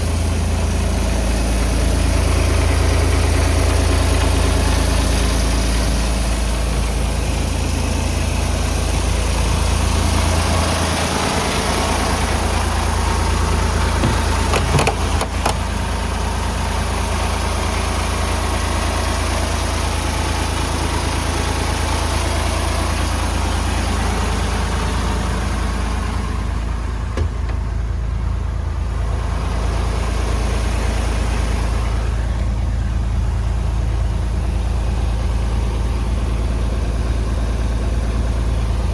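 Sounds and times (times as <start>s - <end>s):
diesel engine idling: 0.0s - 38.9s
brief knocks: 14.0s - 15.8s.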